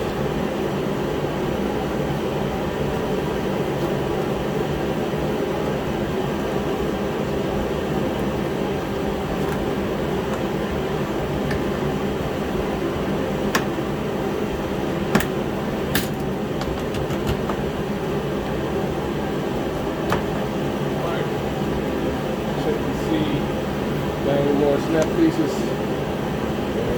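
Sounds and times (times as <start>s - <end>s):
heater running: 0.0s - 26.9s.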